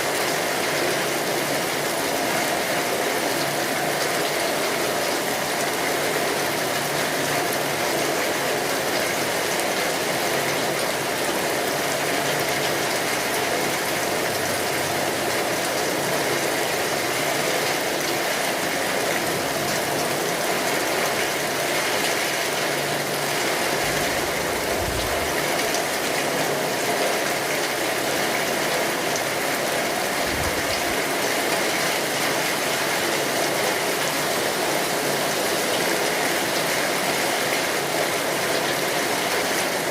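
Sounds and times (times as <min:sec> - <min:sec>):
heavy rain on a tin roof: 0:00.0 - 0:39.9
low rumbles: 0:23.8 - 0:25.6.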